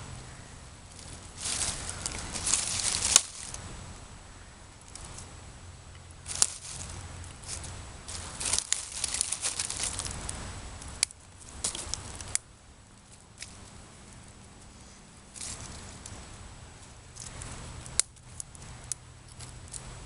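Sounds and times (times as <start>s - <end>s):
sticks and kindling rustling: 0.0s - 20.0s
sticks snapping: 0.9s - 3.6s, 5.9s - 13.7s, 17.2s - 19.9s.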